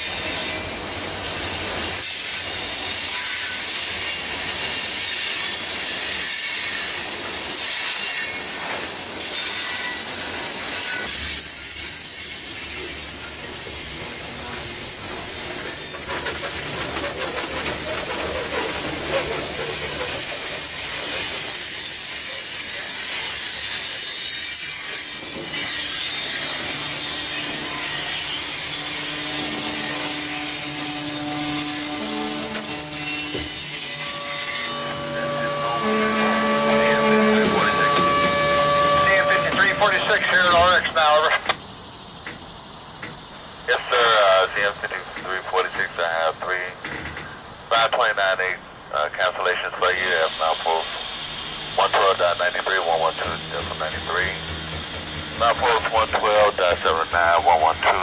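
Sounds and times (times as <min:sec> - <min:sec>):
train wheels rushing on rail: 0:00.0 - 0:58.0
steady tones: 0:33.9 - 0:40.9, 0:50.4 - 0:58.0.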